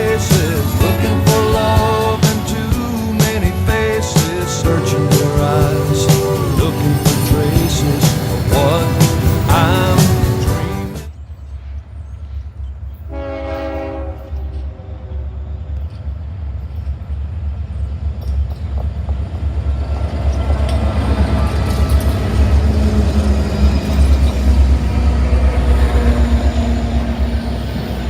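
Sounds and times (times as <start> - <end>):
diesel locomotive engine rumble: 0.0 - 28.0
train horn blast: 13.1 - 15.3.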